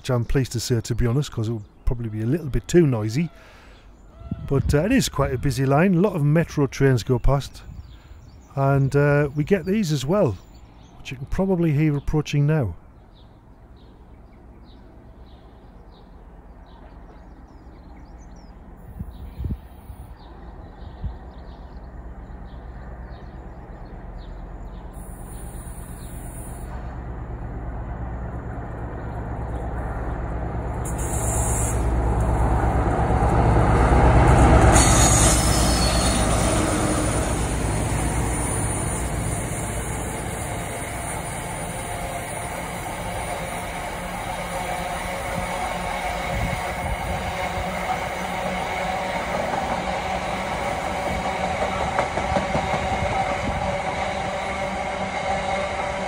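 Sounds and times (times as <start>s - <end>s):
freight train passing: 12.6s - 56.0s.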